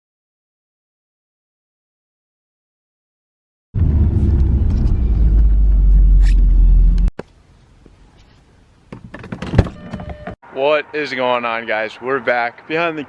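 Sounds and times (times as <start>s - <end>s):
car engine rumbling: 3.8s - 9.8s.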